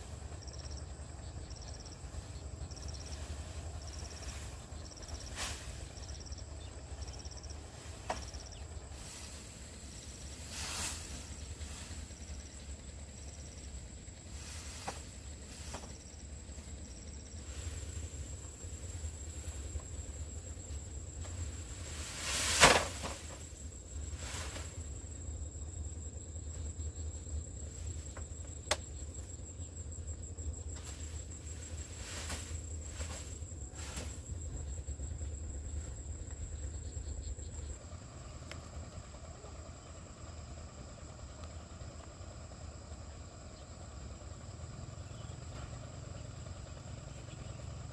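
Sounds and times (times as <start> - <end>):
insect chirring: 0.0 - 47.9.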